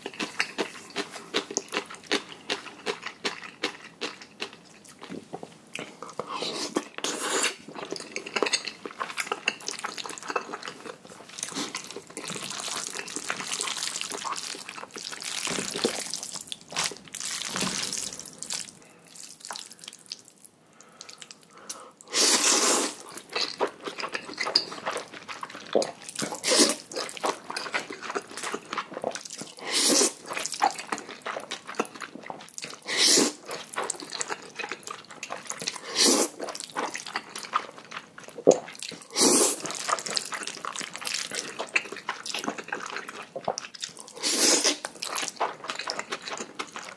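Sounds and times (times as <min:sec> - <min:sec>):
person chewing: 0:00.0 - 0:46.9
person slurping noodles: 0:06.2 - 0:07.6, 0:22.1 - 0:23.0, 0:26.3 - 0:26.9, 0:29.6 - 0:30.2, 0:32.8 - 0:33.4, 0:35.8 - 0:36.4, 0:39.0 - 0:39.8, 0:44.1 - 0:44.8.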